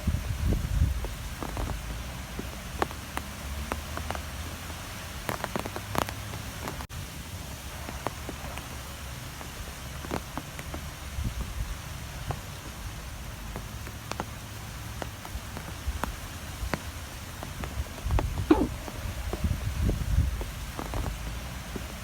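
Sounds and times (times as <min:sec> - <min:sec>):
strong wind buffeting: 0:00.0 - 0:02.4, 0:17.7 - 0:21.2
sharp irregular taps: 0:12.3 - 0:19.4.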